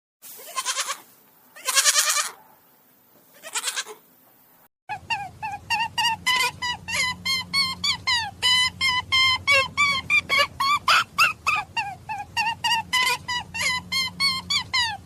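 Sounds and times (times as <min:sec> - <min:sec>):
goat bleating: 0:00.4 - 0:02.4, 0:03.4 - 0:04.0, 0:05.0 - 0:15.0
low steady hum: 0:04.0 - 0:15.0.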